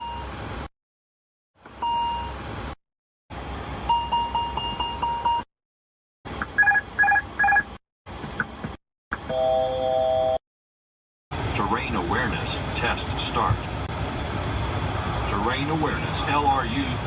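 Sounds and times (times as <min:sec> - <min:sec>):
steady warning beep: 0:03.9 - 0:05.5.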